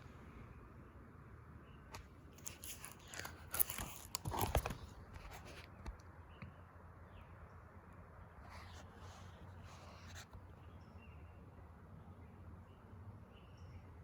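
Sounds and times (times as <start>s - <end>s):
sharp paper crackles: 2.4s - 5.7s
paper crinkling and rustling: 2.4s - 5.9s.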